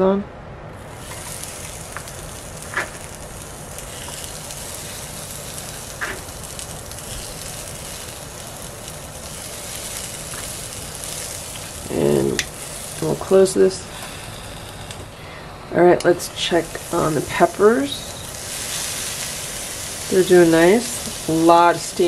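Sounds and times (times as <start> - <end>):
pepper sizzling on a griddle: 0.8 - 22.0.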